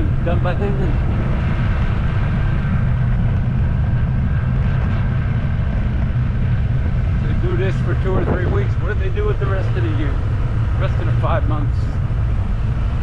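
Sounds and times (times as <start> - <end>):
road noise: 0.0 - 13.0
vehicle engine running: 0.0 - 13.0.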